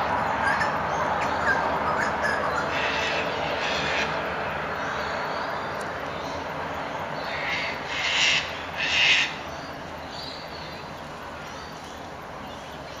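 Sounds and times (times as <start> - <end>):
faint bird calls: 0.0 - 4.2, 7.2 - 10.5
loud harsh bird calls: 0.0 - 10.4
steady background hiss: 0.0 - 13.0.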